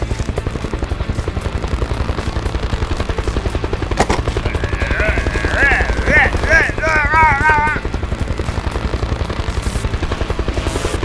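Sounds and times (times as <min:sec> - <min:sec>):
engine chugging: 0:00.0 - 0:11.0
sharp click: 0:04.0 - 0:04.4.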